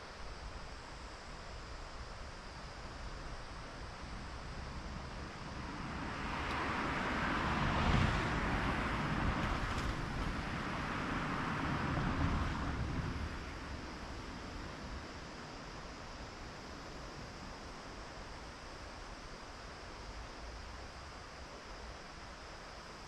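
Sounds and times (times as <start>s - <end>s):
car driving past: 5.4s - 13.8s.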